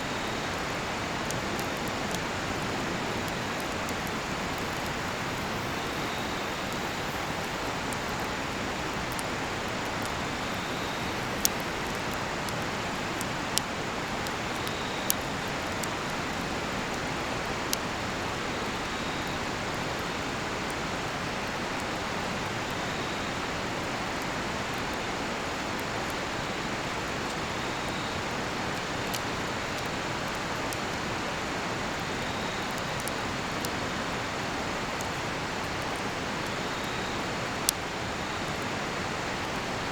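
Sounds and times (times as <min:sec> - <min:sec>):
cricket chirping: 0:00.0 - 0:13.5, 0:14.2 - 0:16.4, 0:36.5 - 0:37.4
river rushing: 0:00.0 - 0:14.2
campfire crackling pops: 0:00.0 - 0:39.8.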